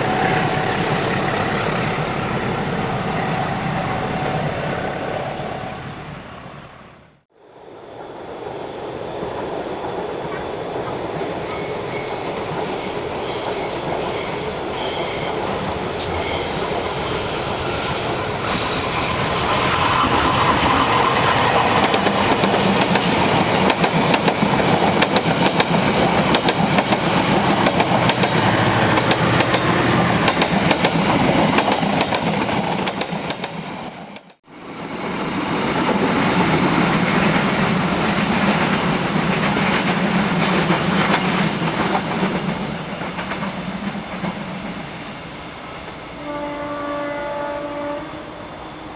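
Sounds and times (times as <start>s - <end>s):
high wheel squeal: 0.0s - 6.6s, 7.9s - 23.6s
train wheels rumbling on rail: 7.9s - 46.3s.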